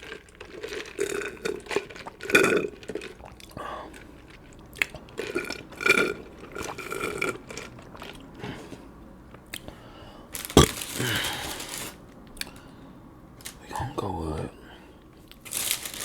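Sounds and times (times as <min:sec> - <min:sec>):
rough breathy burst: 0:09.7 - 0:13.0
person burping: 0:10.5 - 0:11.6.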